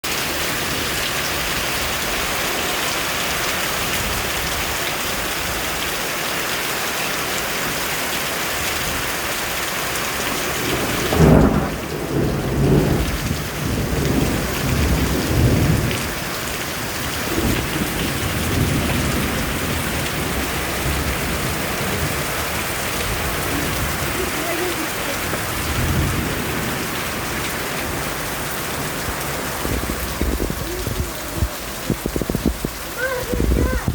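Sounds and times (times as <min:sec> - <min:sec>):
steady rain: 0:00.0 - 0:33.9
thunder rumbling: 0:10.4 - 0:33.9.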